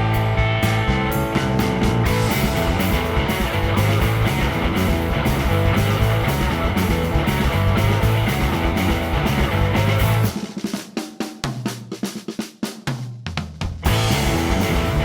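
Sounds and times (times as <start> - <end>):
live rock band instrumental: 0.0 - 10.8, 13.8 - 15.0.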